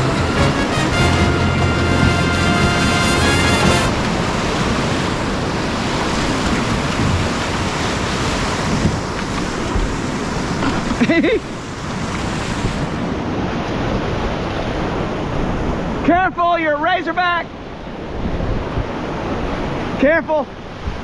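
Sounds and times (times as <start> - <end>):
whitewater rushing in creek: 0.0 - 16.1.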